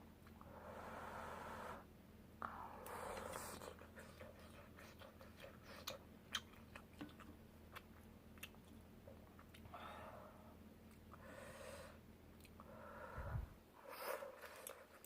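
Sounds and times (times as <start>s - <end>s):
chewing with wet mouth clicks: 3.1s - 9.7s.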